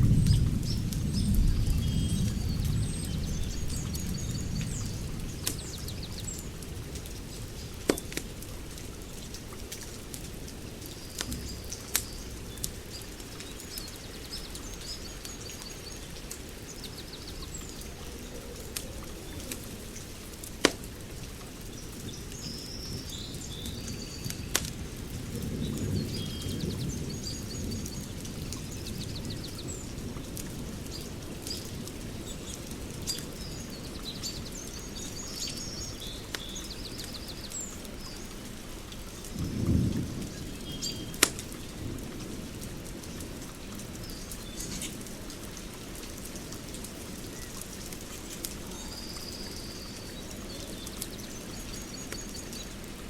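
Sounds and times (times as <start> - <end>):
wood fire crackling: 0.0 - 25.9, 36.2 - 53.0
birds chirping: 0.1 - 8.2, 48.2 - 52.8
fire pops: 20.4 - 21.0, 41.1 - 41.6.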